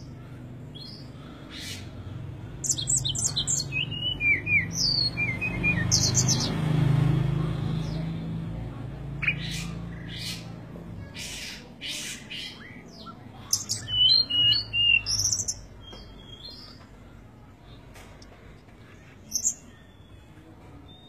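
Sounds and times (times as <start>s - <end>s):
bird chirping: 2.6s - 6.6s, 9.2s - 17.2s.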